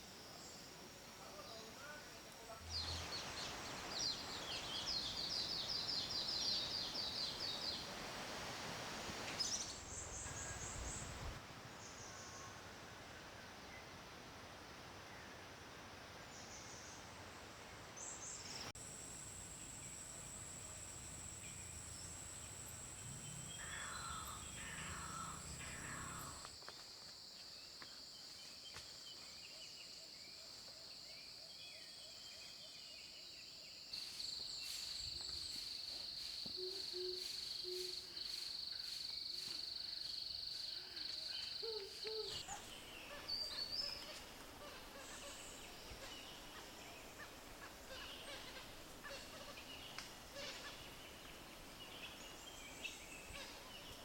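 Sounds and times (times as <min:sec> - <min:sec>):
short bird calls: 0:36.6 - 0:39.6.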